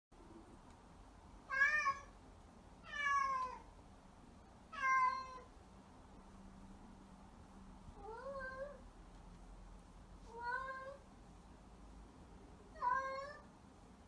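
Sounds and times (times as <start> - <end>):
cat meowing: 1.5 - 2.1, 2.9 - 3.6, 4.7 - 5.5, 8.0 - 8.8, 12.7 - 13.5.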